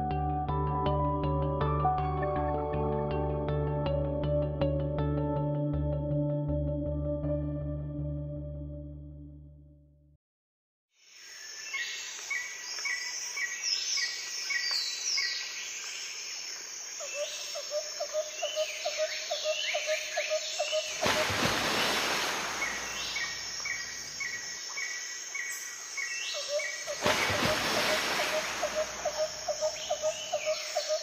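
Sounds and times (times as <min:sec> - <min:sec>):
birds chirping and calling: 0:22.6 - 0:31.0.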